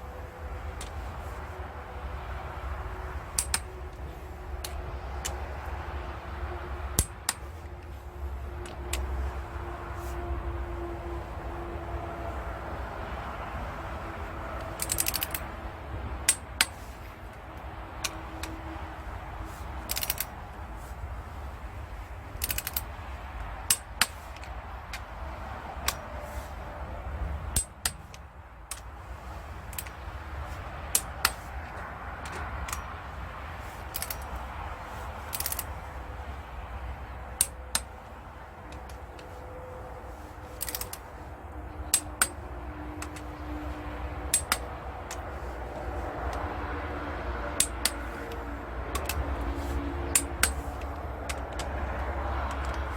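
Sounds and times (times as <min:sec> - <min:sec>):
metallic clicks of hand tools: 0:03.2 - 0:04.0, 0:04.6 - 0:05.8, 0:06.9 - 0:07.9, 0:08.6 - 0:09.1, 0:14.6 - 0:15.5, 0:16.2 - 0:17.1, 0:19.8 - 0:20.3, 0:22.4 - 0:23.0, 0:23.6 - 0:25.1, 0:27.5 - 0:28.9, 0:29.7 - 0:30.0, 0:30.9 - 0:33.0, 0:33.8 - 0:35.9, 0:37.3 - 0:38.0, 0:40.4 - 0:45.4, 0:46.2 - 0:52.9.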